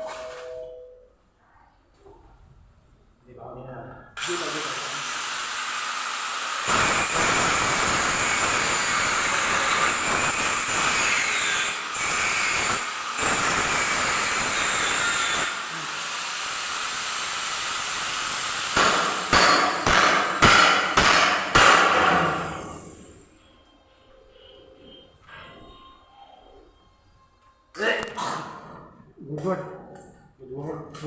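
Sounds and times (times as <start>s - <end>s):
hammer blows: 18.8s - 22.7s.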